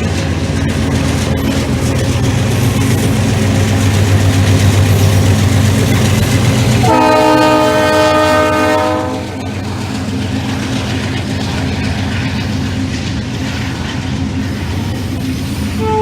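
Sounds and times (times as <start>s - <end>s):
diesel locomotive rumbling: 0.0s - 16.0s
locomotive air horn chord: 6.8s - 9.4s, 15.8s - 16.0s.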